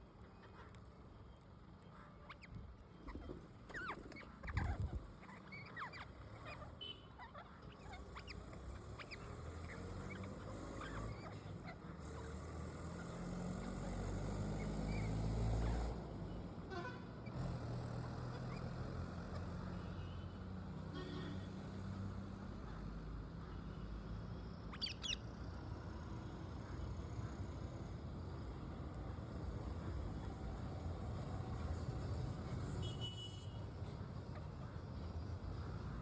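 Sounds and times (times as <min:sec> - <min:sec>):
parrots chirping and squawking: 0:03.2 - 0:06.6.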